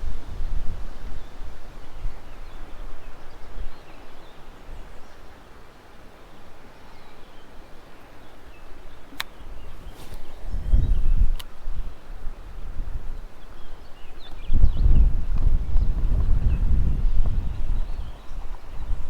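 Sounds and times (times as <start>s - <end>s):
wind gusting on microphone: 0.0s - 3.8s, 9.2s - 19.0s.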